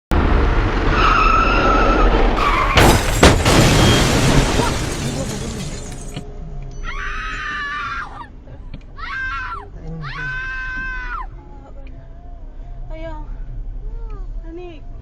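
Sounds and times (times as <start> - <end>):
clattering road noise: 0.1 - 6.3
car crash impacts: 2.4 - 6.2
tyres screeching: 2.4 - 6.2.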